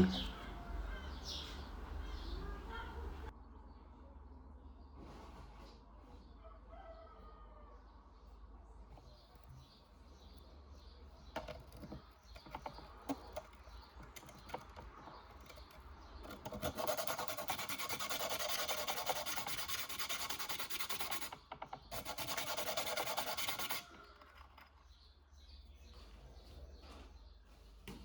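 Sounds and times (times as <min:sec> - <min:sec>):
sharpening stone rasping on metal: 0:16.3 - 0:24.7
stone scraping and tapping metal: 0:20.3 - 0:25.0.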